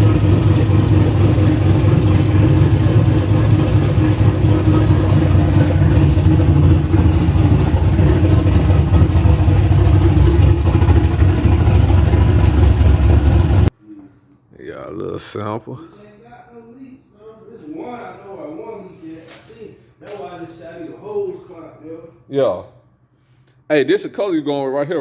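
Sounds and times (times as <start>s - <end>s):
car engine running loud: 0.0s - 13.7s.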